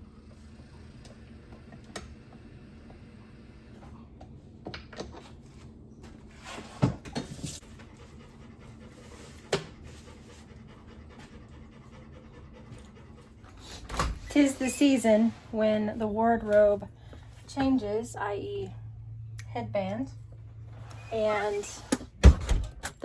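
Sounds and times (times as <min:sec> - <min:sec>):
dog panting: 0:07.6 - 0:13.9.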